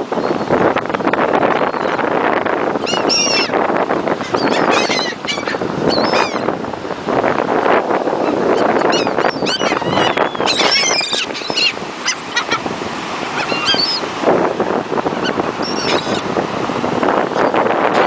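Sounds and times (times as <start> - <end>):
wind rushing: 0.0 - 18.0
gulls calling: 1.4 - 6.6, 8.1 - 16.4.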